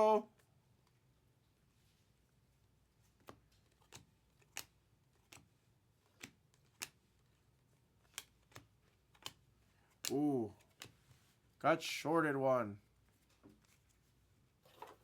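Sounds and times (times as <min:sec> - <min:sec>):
cards flipped by hand: 0:03.0 - 0:11.4, 0:13.0 - 0:15.0.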